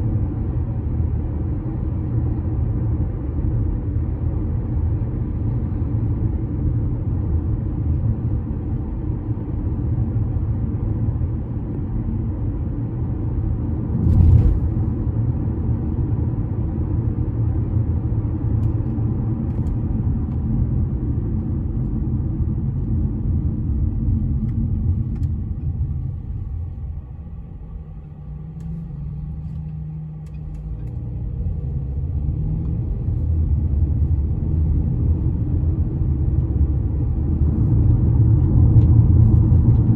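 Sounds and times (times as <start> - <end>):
traffic rumble on a bridge: 0.0 - 39.9.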